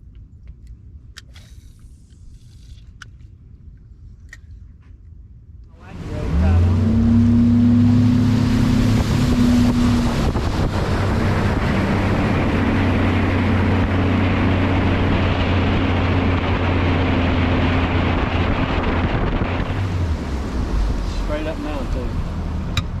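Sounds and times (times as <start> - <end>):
rushing wind: 0.0 - 23.0
outboard motor droning: 5.8 - 23.0
water noise: 5.8 - 23.0.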